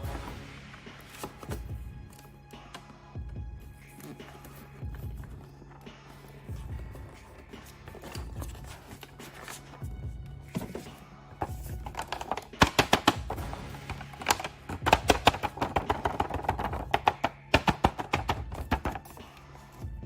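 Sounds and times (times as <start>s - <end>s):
rapid clicking and tapping: 3.9s - 19.9s.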